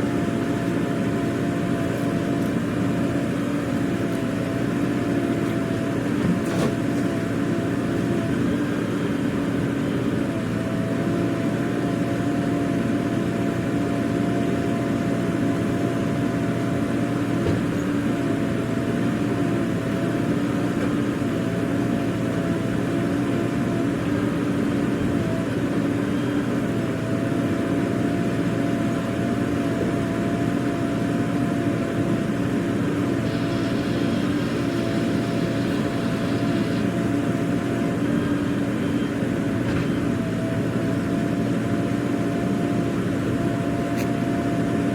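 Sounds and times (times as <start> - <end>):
diesel engine running: 0.0 - 44.9
faint wavering whine: 33.1 - 39.2.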